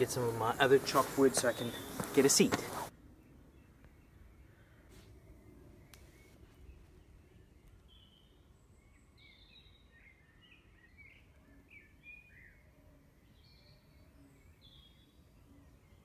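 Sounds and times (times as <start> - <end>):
birds chirping and whistling: 0.0 - 2.9.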